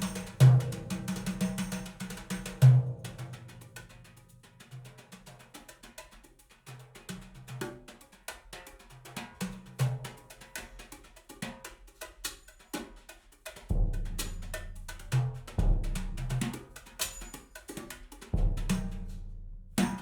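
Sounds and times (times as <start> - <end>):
low drum notes: 0.0 - 1.8, 13.7 - 16.8, 18.3 - 20.0
hand percussion strikes: 0.0 - 20.0.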